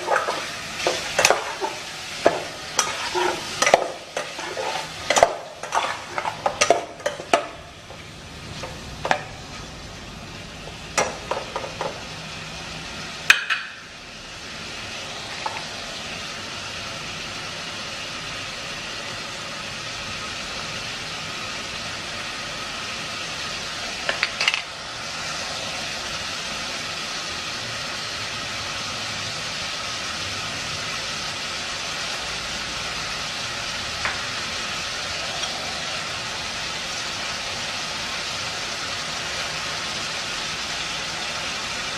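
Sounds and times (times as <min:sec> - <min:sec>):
metal utensil scraping pot: 0:00.0 - 0:07.6
food sizzling in pot: 0:00.0 - 0:41.9.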